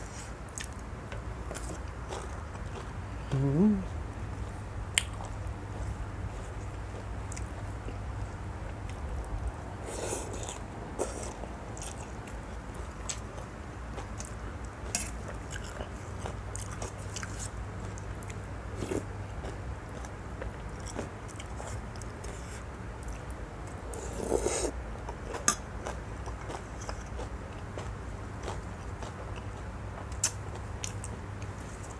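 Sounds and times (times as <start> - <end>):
steady low hum: 0.0 - 31.9
person chewing: 9.9 - 31.1.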